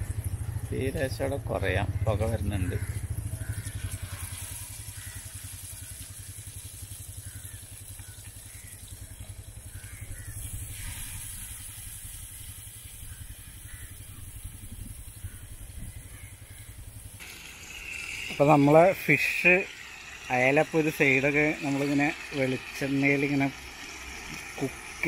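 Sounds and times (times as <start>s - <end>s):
fish sizzling in oil: 2.7s - 15.4s, 16.1s - 25.0s
steady low rumble: 8.5s - 17.2s.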